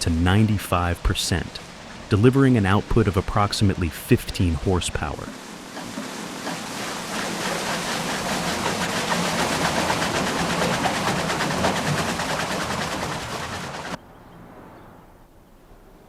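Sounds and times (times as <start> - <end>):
sawmill machinery rattling: 5.2 - 14.0.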